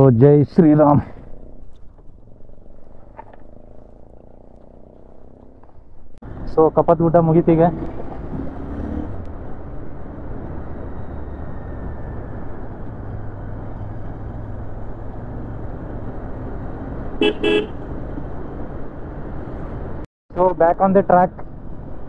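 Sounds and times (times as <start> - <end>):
wind and road noise: 0.0 - 22.0
motorcycle engine running: 1.2 - 6.2.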